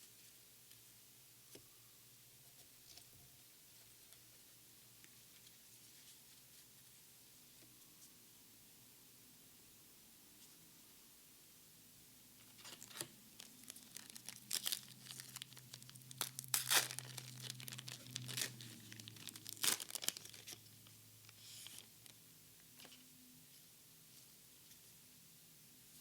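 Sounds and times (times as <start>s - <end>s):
foil wrapper tearing and crinkling: 12.6s - 20.7s.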